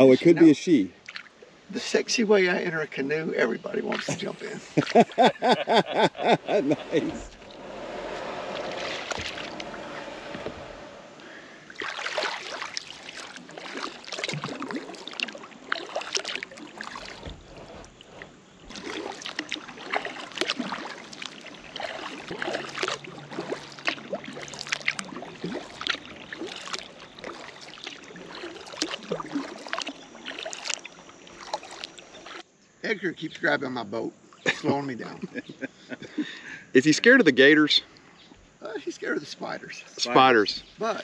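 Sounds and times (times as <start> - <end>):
paddle splashing in water: 1.0 - 1.4, 3.8 - 32.5
water dripping: 1.0 - 1.4, 11.2 - 32.4.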